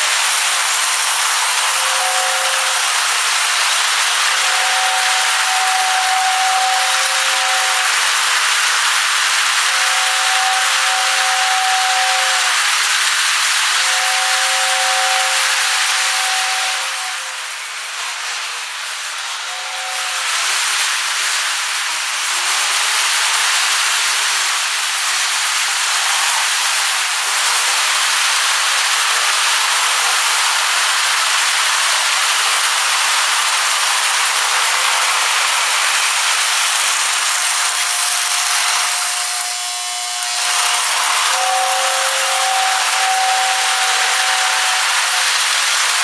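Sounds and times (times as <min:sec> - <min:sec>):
toy train air whistle hissing: 0:00.0 - 0:46.0.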